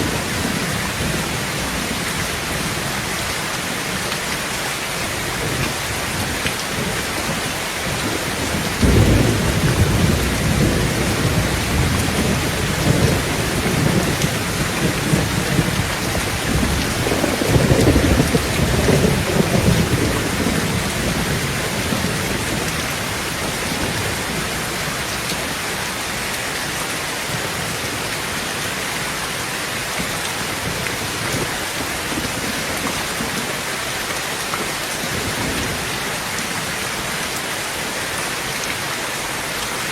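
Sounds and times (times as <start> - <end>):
heavy rain on a tin roof: 0.0 - 39.9
thunder rolling: 5.4 - 24.8.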